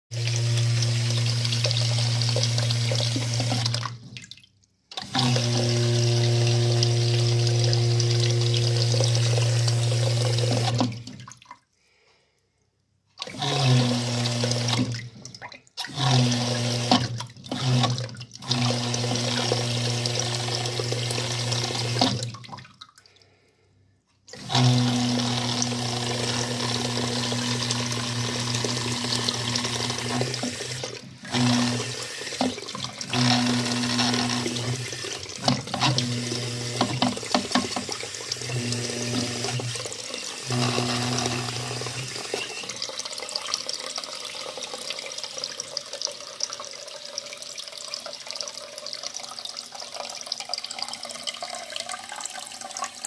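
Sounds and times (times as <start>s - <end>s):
water rushing through plumbing: 0.1s - 12.1s, 13.1s - 23.6s, 24.3s - 53.0s.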